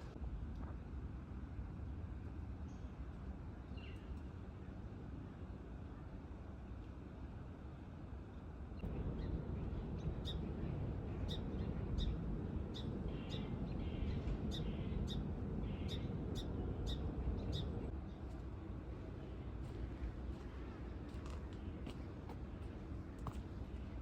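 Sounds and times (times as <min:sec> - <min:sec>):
low rushing noise: 0:08.8 - 0:21.0.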